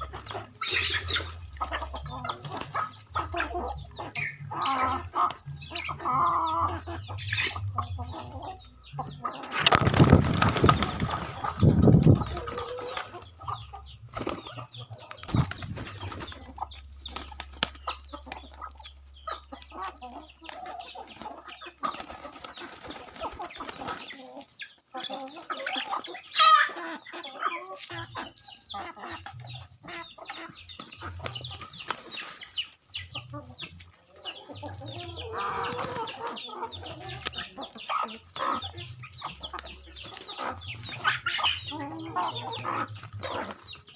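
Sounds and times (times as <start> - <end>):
chickens clucking: 0.0 - 43.9
wings flapping: 9.5 - 13.3, 15.2 - 18.7.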